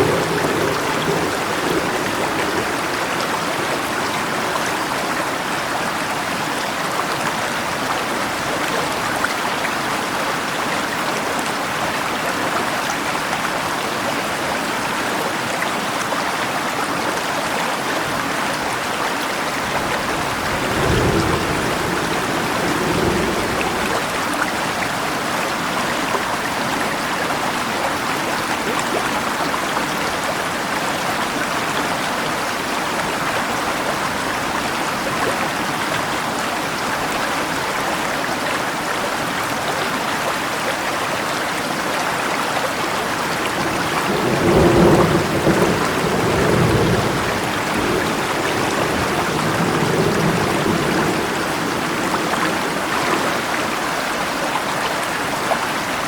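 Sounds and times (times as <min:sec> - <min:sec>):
thunder rumbling: 0:00.0 - 0:05.5, 0:19.6 - 0:25.0, 0:43.1 - 0:54.2
rain falling: 0:00.0 - 0:56.0
river flowing: 0:00.0 - 0:56.0.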